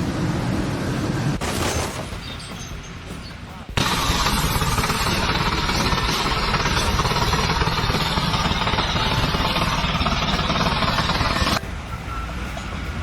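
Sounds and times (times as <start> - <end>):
loud machinery rattling: 3.8 - 11.6.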